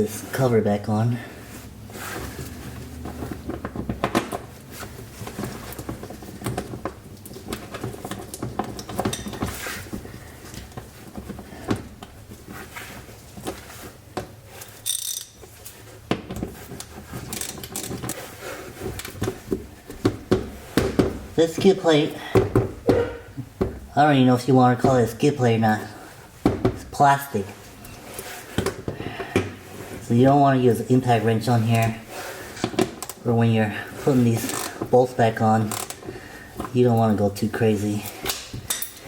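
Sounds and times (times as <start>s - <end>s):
plastic and bolts knocking and scraping: 2.0s - 24.0s, 26.4s - 27.1s, 27.8s - 30.1s, 31.6s - 33.2s.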